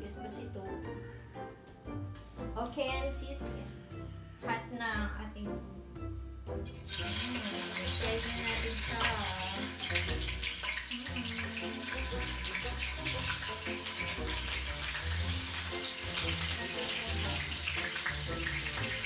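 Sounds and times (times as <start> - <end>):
tofu sizzling in hot oil: 6.7 - 19.0
background music with bass line: 8.0 - 19.0.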